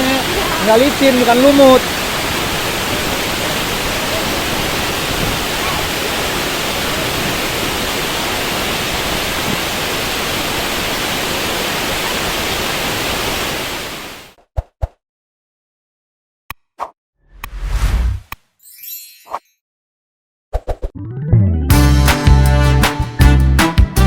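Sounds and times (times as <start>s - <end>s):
waterfall roaring: 0.0s - 14.3s.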